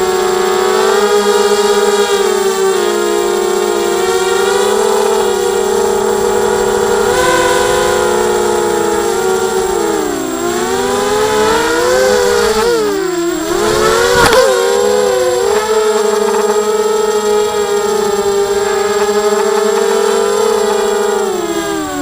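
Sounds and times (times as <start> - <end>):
quadcopter motors whining: 0.0 - 22.0
sharp click: 14.1 - 14.5.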